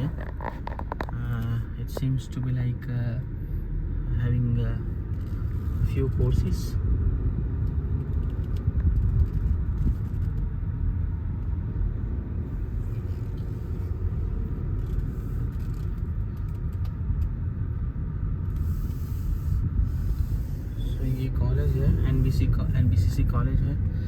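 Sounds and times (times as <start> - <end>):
moving car rumble: 0.0 - 24.0.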